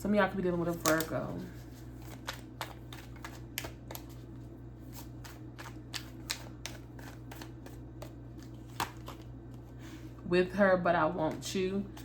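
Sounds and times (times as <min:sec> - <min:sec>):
steady low hum: 0:00.0 - 0:12.0
cards being shuffled: 0:00.6 - 0:09.7.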